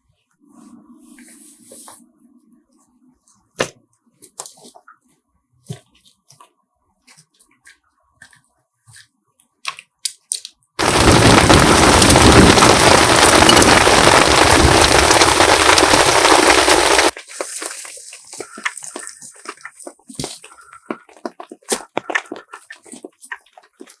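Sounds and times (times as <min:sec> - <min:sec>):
faint cracks and snaps: 0:09.6 - 0:20.2
heavy rain downpour: 0:10.8 - 0:17.2.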